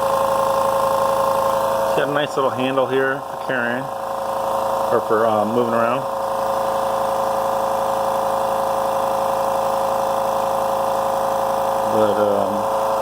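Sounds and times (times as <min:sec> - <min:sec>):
air compressor running: 0:00.0 - 0:13.0.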